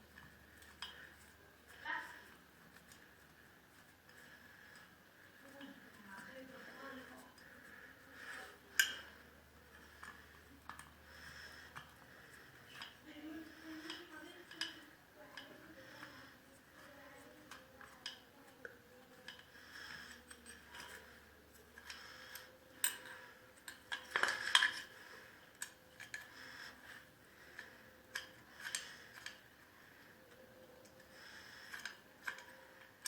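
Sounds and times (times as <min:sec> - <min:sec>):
metal tools clinking and scraping: 0:19.1 - 0:29.5.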